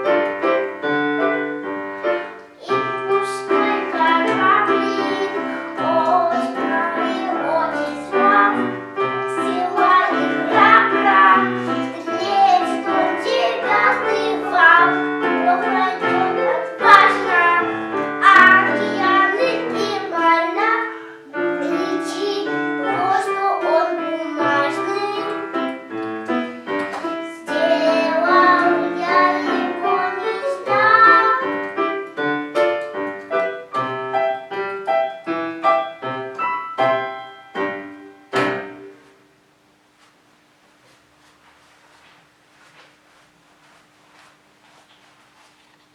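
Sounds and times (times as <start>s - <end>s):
piano accompaniment: 0.0s - 39.7s
child singing: 2.6s - 31.7s.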